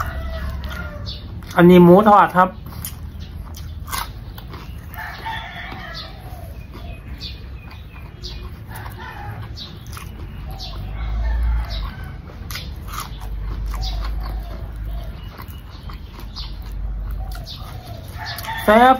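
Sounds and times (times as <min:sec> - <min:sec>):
rooster crowing: 0:00.0 - 0:01.3, 0:04.9 - 0:06.5, 0:08.7 - 0:09.6, 0:10.7 - 0:12.4, 0:17.8 - 0:18.9
chewing crunchy fried food: 0:00.0 - 0:18.9.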